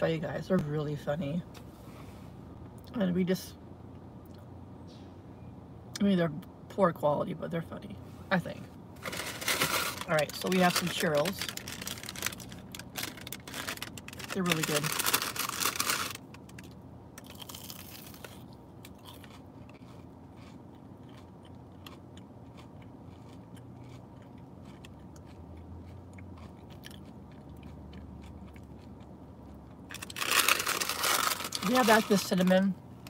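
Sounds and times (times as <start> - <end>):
chewing and crunching fried pastry: 9.0 - 32.8.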